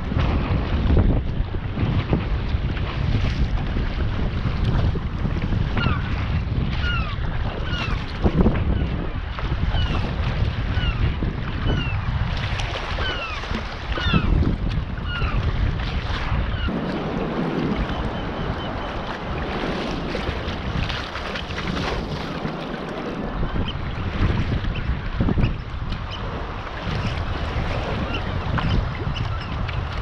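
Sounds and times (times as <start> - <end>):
wind rumbling on microphone: 0.0 - 30.0
water washing: 16.6 - 23.6.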